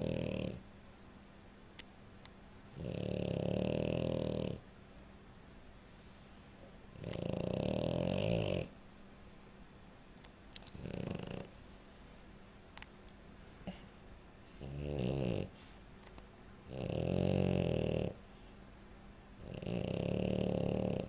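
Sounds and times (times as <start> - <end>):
dog snoring: 0.0 - 0.6, 2.8 - 4.6, 6.9 - 8.7, 10.7 - 11.6, 13.6 - 15.6, 16.6 - 18.2, 19.4 - 21.0.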